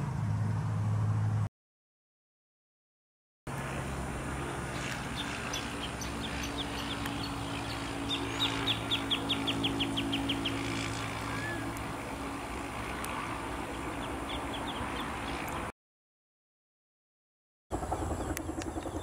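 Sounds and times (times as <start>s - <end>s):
bird chirping: 4.8s - 11.7s, 13.7s - 15.7s, 17.9s - 19.0s.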